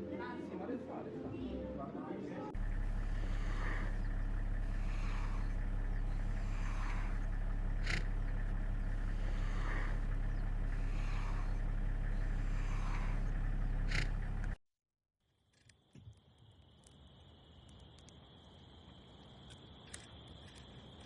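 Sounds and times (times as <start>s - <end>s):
low engine hum: 2.5s - 14.6s.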